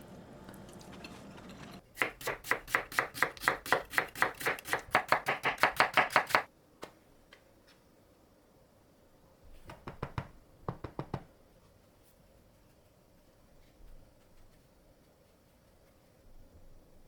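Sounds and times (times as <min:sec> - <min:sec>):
knife chopping on cutting board: 0:01.0 - 0:06.5.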